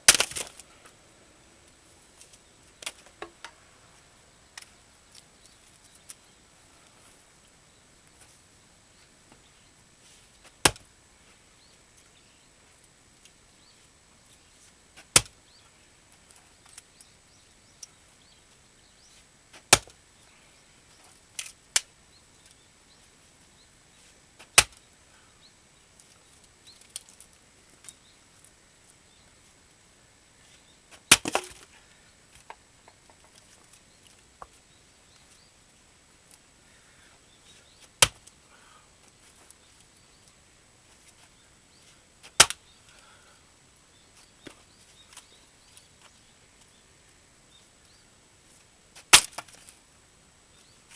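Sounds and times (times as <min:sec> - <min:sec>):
axe chopping wood: 0:00.1 - 0:00.6, 0:10.6 - 0:10.9, 0:19.6 - 0:20.0, 0:24.6 - 0:24.8, 0:31.0 - 0:31.6, 0:38.0 - 0:38.3, 0:42.3 - 0:42.6, 0:49.1 - 0:49.6
wood clattering: 0:31.1 - 0:31.7.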